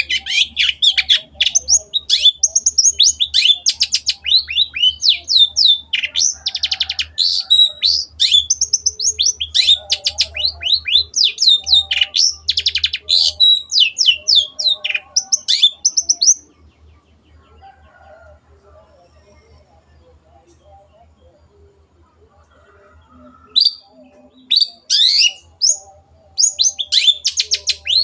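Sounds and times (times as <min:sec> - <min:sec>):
bird singing with rattling trills: 0:00.0 - 0:21.9, 0:22.5 - 0:28.0.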